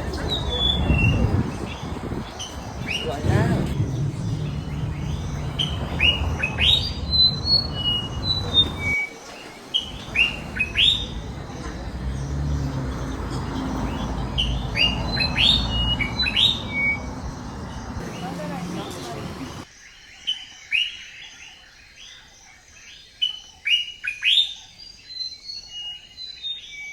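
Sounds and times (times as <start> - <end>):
steady low rumble: 0.0 - 9.0
small birds chirping: 0.0 - 26.7.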